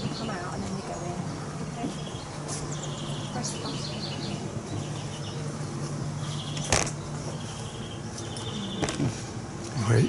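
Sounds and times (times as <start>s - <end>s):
small birds trilling: 0.0s - 9.4s
steady low hum: 0.0s - 10.0s.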